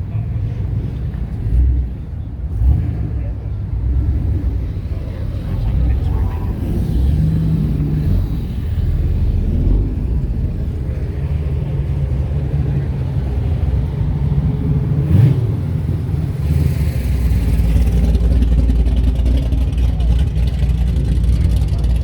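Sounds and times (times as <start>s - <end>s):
car engines rumbling: 0.0s - 22.0s.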